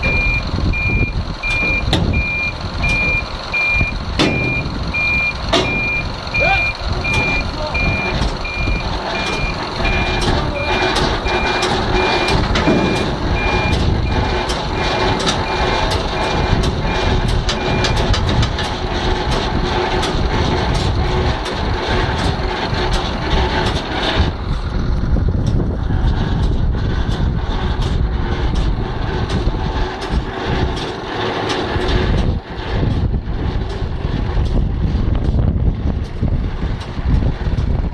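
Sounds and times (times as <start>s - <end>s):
truck reversing alarm beeping: 0.0s - 24.2s
diesel engine running: 0.0s - 37.9s.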